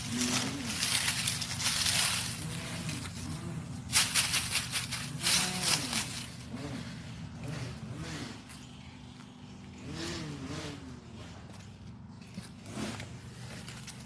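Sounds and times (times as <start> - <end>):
cracker crunching: 0.0 - 6.5
low hum: 0.0 - 14.0.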